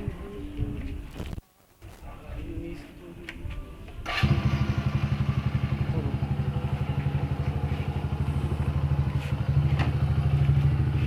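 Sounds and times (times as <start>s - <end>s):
motorcycle engine idling: 4.1s - 11.0s.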